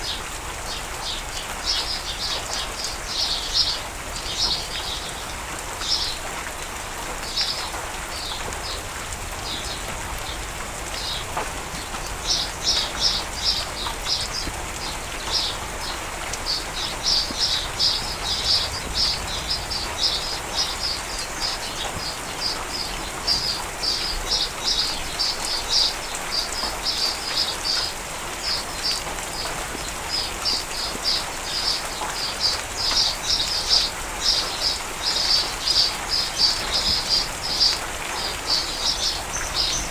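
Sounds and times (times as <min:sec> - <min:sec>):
steady rain falling: 0:00.0 - 0:39.9
songbird chirping: 0:12.2 - 0:39.9.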